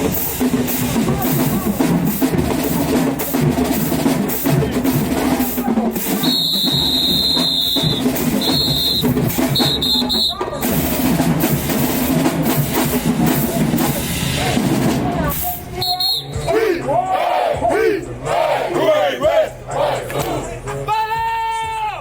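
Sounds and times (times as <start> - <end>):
heavy drumming: 0.0 - 20.6
marching band playing: 0.0 - 20.8
high whistle blasts: 6.2 - 10.5, 15.8 - 16.6.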